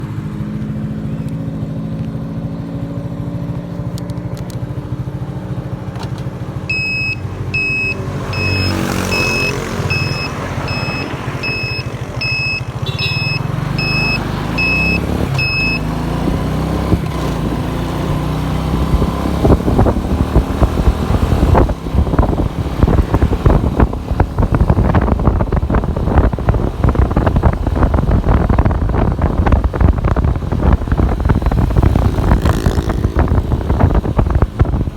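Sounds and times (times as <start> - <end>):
motorcycle engine accelerating: 0.0 - 34.9
beeper: 6.7 - 15.9
wind buffeting microphone: 14.4 - 34.9.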